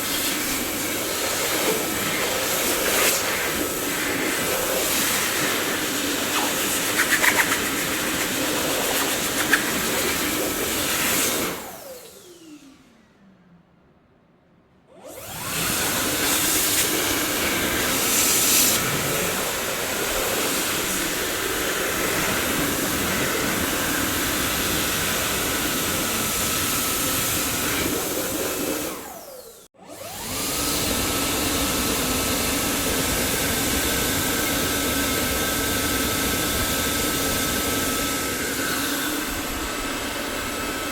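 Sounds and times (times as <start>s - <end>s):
vacuum cleaner running: 0.0s - 13.1s, 14.9s - 40.9s
vacuum motor winding down: 0.0s - 13.3s, 14.9s - 40.9s.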